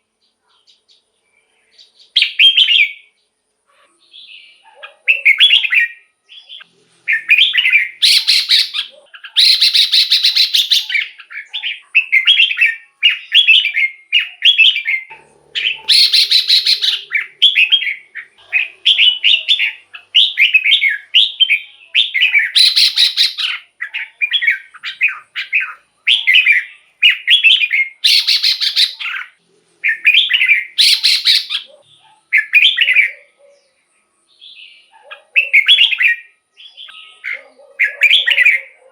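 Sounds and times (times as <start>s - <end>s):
bulbul whistled phrases: 5.1s - 31.8s.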